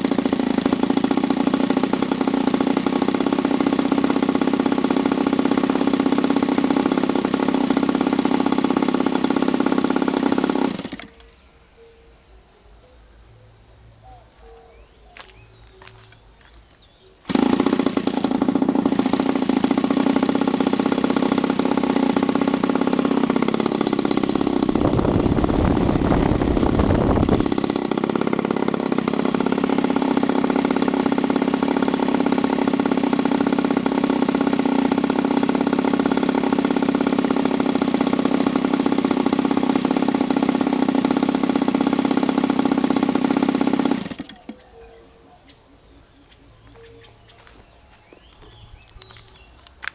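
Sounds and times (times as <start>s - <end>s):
model aircraft engine running: 0.0s - 11.3s, 17.3s - 44.6s.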